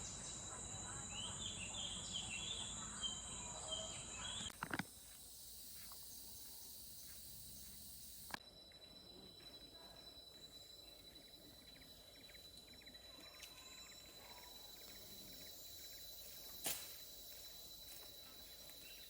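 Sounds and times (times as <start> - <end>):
high-pitched insect trill: 0.0 - 19.0
hiss of insects: 4.6 - 9.1, 9.7 - 19.0.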